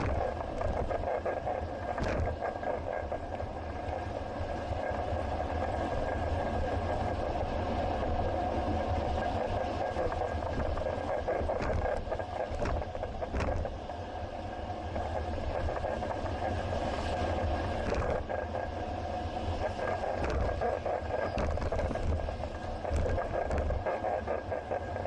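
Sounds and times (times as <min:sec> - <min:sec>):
bicycle rattles and clicks: 0:00.0 - 0:03.9, 0:09.9 - 0:13.8, 0:17.8 - 0:18.4, 0:19.6 - 0:25.0
bicycle road noise: 0:00.0 - 0:25.0.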